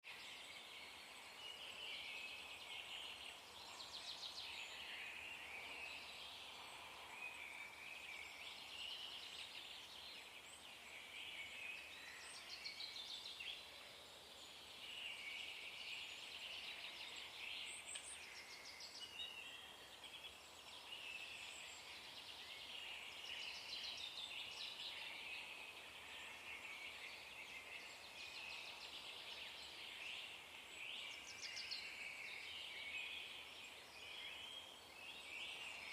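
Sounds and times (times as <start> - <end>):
faint dawn chorus of birds: 0.0 - 35.9.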